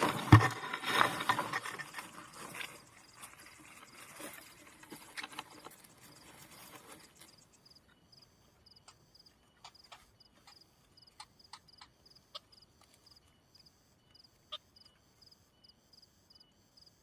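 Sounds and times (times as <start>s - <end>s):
insect chirping: 0.0s - 17.0s.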